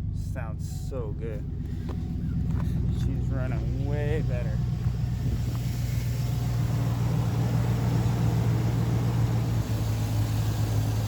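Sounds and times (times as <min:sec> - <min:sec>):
engine idling: 0:00.0 - 0:11.0
man talking: 0:00.2 - 0:01.5, 0:02.8 - 0:04.7.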